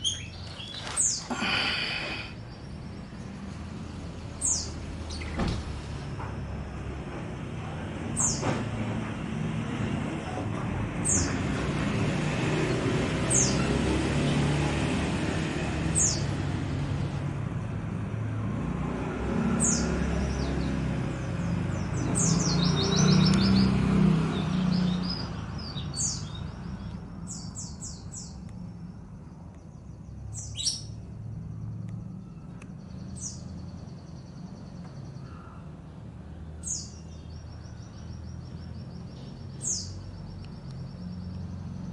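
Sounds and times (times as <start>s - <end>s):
songbird chirping: 0.0s - 5.5s, 19.4s - 41.9s.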